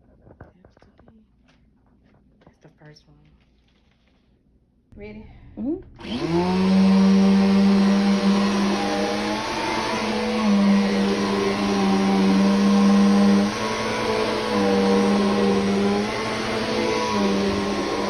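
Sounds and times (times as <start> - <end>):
vacuum cleaner motor humming: 6.0 - 18.0.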